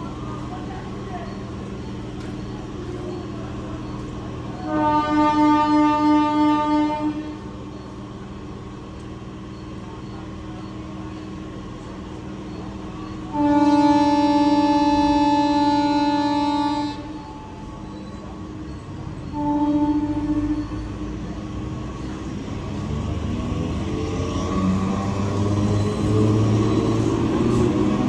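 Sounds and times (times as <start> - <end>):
low train hum: 0.0 - 28.0
train air horn blasts: 4.6 - 7.4, 13.3 - 17.8, 19.2 - 21.0.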